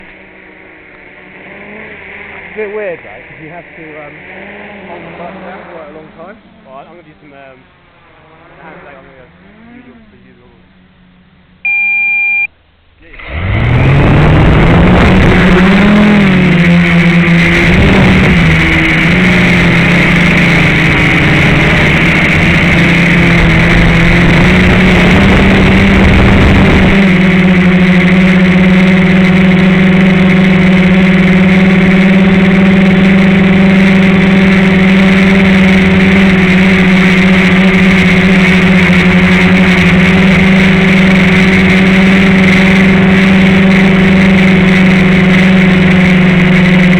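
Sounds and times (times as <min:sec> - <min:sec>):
quadcopter motors whining: 0:00.0 - 0:46.9
short beep: 0:11.6 - 0:12.6.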